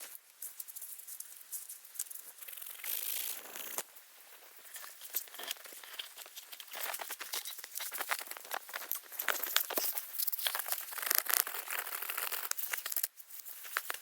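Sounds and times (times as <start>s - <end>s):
crinkly rustling: 3.2s - 14.0s.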